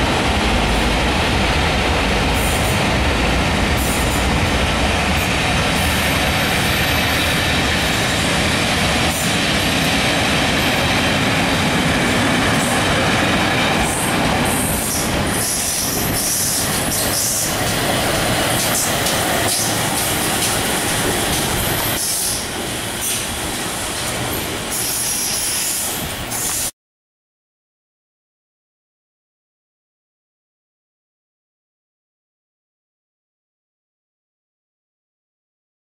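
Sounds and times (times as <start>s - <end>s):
train wheel and rail noise: 0.0s - 26.7s
high wheel squeals: 24.3s - 26.7s.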